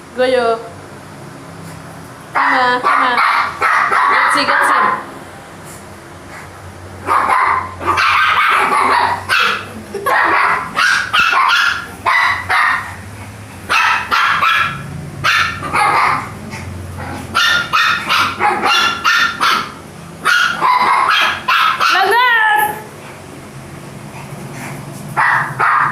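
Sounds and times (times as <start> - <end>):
puppies yapping: 2.4 - 5.0, 6.4 - 22.7, 24.3 - 25.9.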